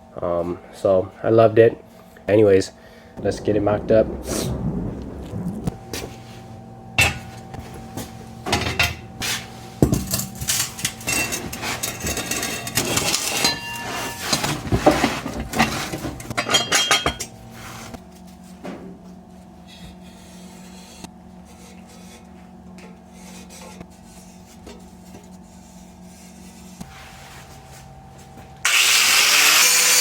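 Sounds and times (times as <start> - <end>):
steady low hum: 0.0 - 28.7
metal exhaust pipes clanking: 3.2 - 17.4.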